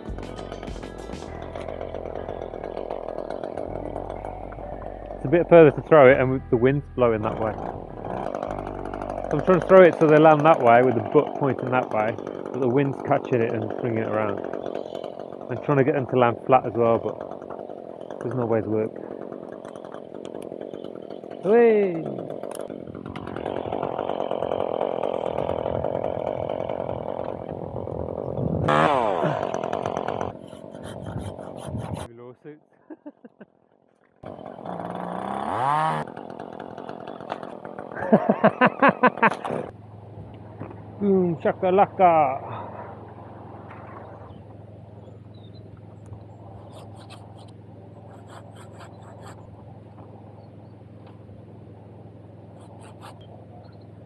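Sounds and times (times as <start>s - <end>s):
steady low hum: 0.0s - 21.4s
chainsaw running: 0.0s - 32.1s, 34.0s - 54.0s
scratching and rubbing: 30.3s - 32.1s, 46.3s - 49.5s, 52.6s - 53.3s.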